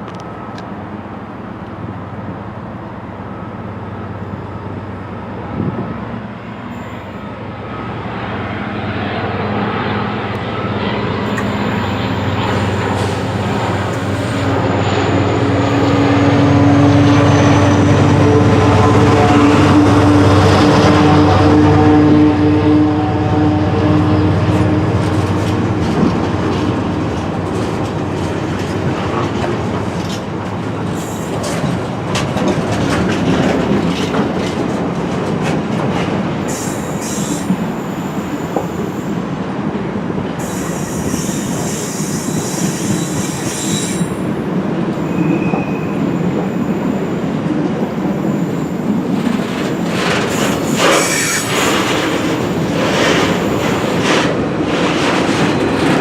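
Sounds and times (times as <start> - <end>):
train wheels rumbling on rails: 0.0 - 56.0
high-pitched wheel squeal: 40.4 - 44.2, 45.0 - 46.2, 50.7 - 51.5.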